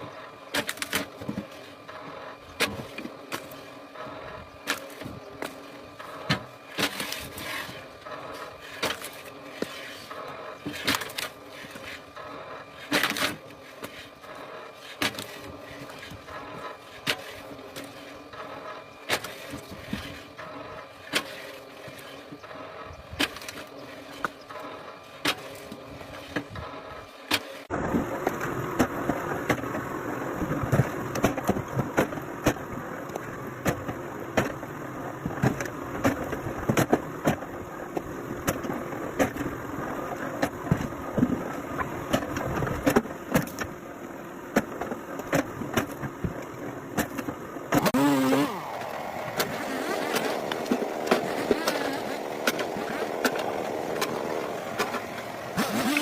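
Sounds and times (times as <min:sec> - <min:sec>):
machinery humming: 0:47.6 - 0:56.0
loud engine noise: 0:47.7 - 0:56.0.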